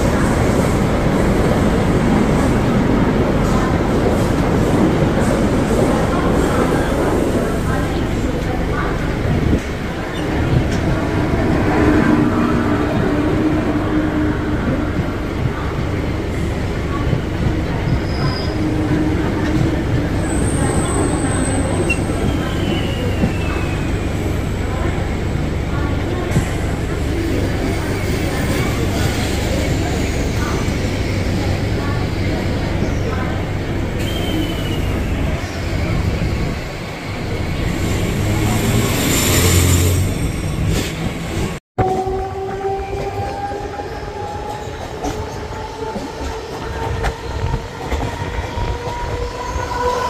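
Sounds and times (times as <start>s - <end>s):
passing train alongside: 0.0s - 50.0s
train wheels rumbling on rails: 0.0s - 50.0s.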